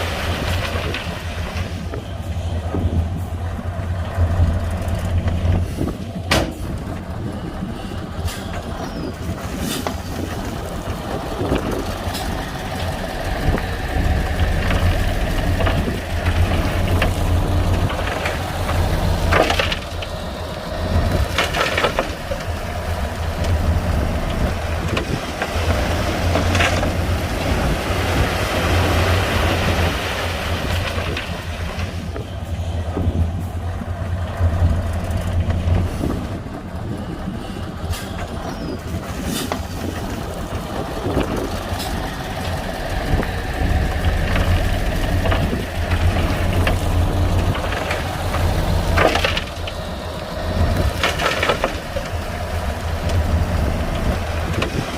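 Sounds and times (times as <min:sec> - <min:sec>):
heavy machinery engine rumble: 0:00.0 - 0:54.9
metallic clanks and knocks: 0:06.3 - 0:07.0.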